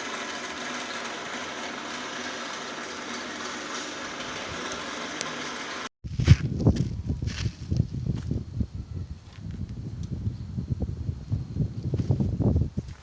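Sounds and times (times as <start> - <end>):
low machine hum: 0.0 - 5.9.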